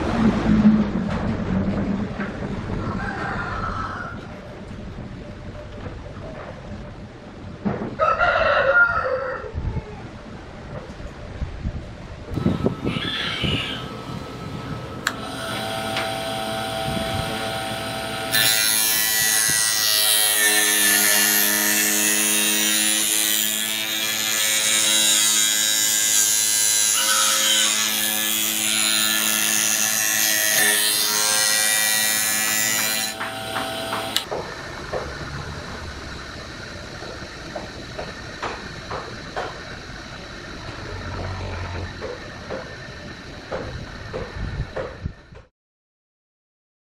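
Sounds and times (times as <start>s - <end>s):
harsh cutting or grinding noise: 12.3s - 39.6s
power tool motor humming: 12.4s - 34.3s.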